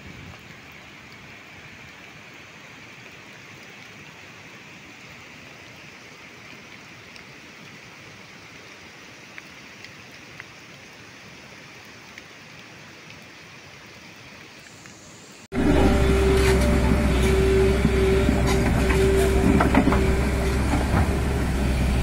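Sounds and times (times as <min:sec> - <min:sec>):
rain falling on forest: 0:00.0 - 0:22.0.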